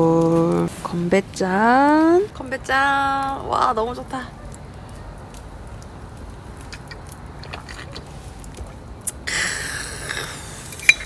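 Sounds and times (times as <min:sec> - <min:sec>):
steady low rumble: 0:00.0 - 0:11.0
person chewing crab: 0:05.8 - 0:11.0.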